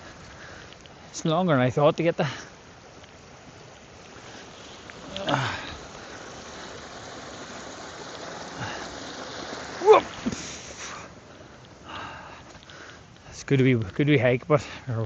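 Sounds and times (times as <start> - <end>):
stream water rushing: 0.0 - 13.2
person vocal sounds: 5.0 - 5.8.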